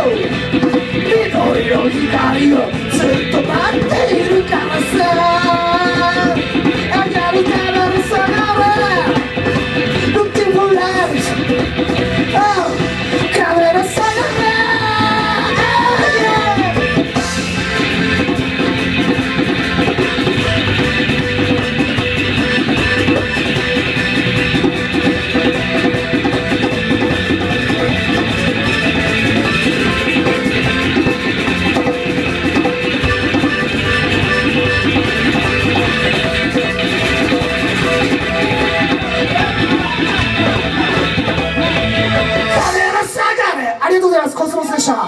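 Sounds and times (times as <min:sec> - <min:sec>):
drum and bass rhythm: 0:00.0 - 0:43.8
live band guitar: 0:00.0 - 0:45.0.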